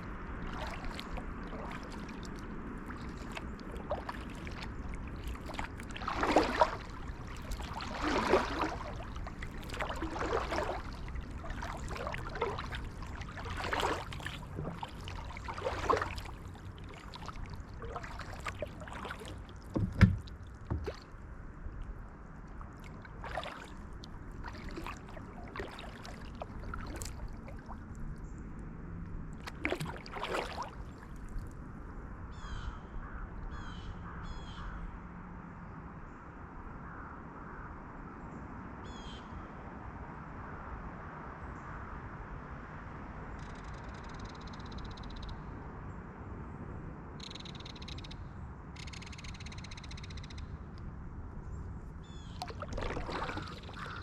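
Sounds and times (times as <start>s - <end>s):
paddle strokes splashing: 0.0s - 28.2s, 29.1s - 31.6s, 52.0s - 54.0s.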